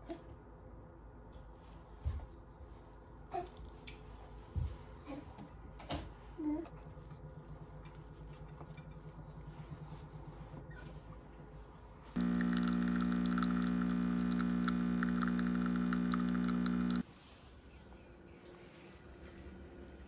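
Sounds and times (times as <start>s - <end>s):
faint low hum: 0.1s - 20.0s
appliance motor humming: 12.2s - 17.1s.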